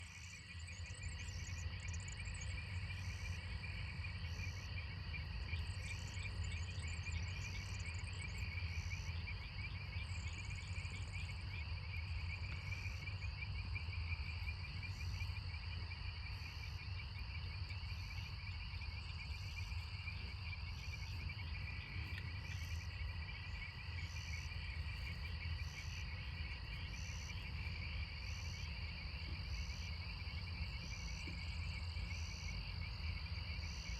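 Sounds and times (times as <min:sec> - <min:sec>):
frogs and insects trilling: 0:00.0 - 0:33.9.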